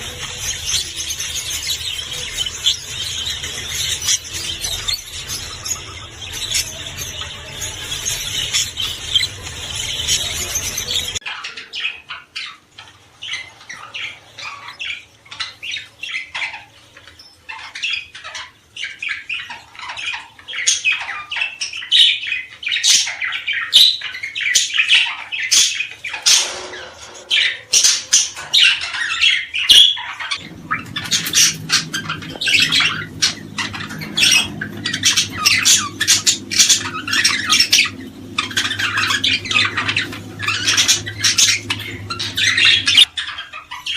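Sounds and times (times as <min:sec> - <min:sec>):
small birds chirping and squawking: 0:00.0 - 0:43.9
low steady hum: 0:30.3 - 0:43.5.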